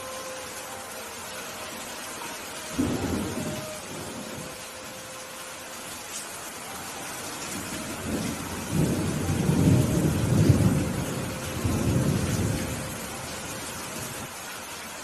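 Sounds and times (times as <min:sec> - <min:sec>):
steady rain: 0:00.0 - 0:15.0
thunder rumbling: 0:02.7 - 0:04.6, 0:07.4 - 0:14.3.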